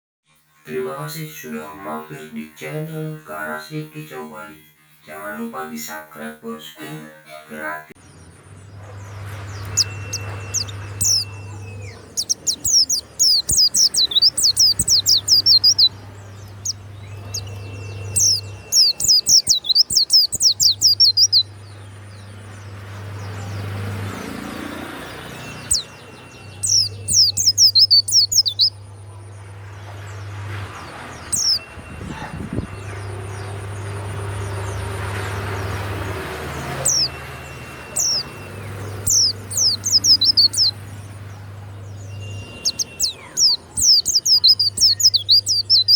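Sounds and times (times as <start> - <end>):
bird singing high chirps: 8.0 - 29.0, 30.8 - 45.9.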